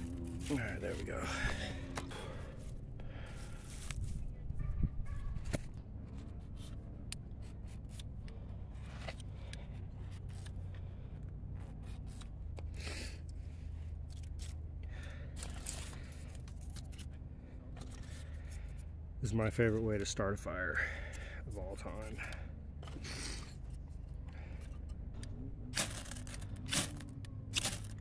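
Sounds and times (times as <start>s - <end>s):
kindling scrapes and rustles: 0.0s - 4.4s, 15.3s - 18.9s, 25.7s - 28.0s
steady low hum: 0.0s - 19.6s.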